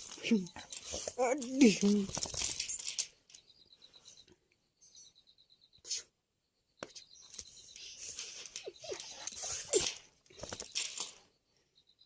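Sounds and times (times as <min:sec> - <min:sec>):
dog yips and whines: 0:08.6 - 0:10.0.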